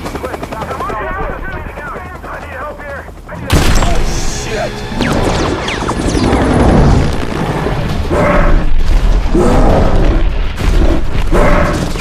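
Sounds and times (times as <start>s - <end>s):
film music: 0.0s - 12.0s
deep rumble: 3.5s - 12.0s.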